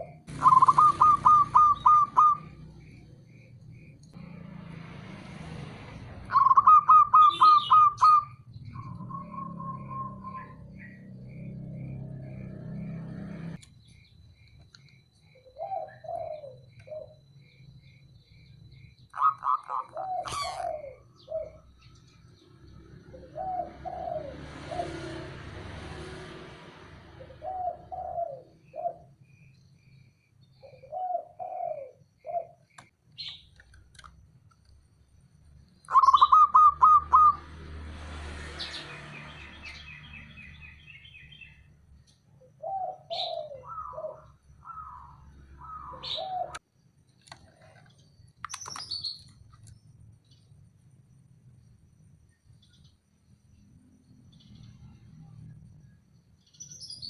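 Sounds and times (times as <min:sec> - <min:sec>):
doves cooing: 0:00.0 - 0:04.0, 0:05.9 - 0:13.6, 0:15.3 - 0:17.4, 0:19.1 - 0:22.0, 0:23.0 - 0:25.6, 0:27.2 - 0:29.2, 0:30.6 - 0:32.9, 0:35.9 - 0:37.4, 0:42.5 - 0:46.6
high bird chirps: 0:00.0 - 0:04.2, 0:06.0 - 0:25.0, 0:35.8 - 0:37.5, 0:42.6 - 0:46.6, 0:48.2 - 0:50.4, 0:56.4 - 0:57.0.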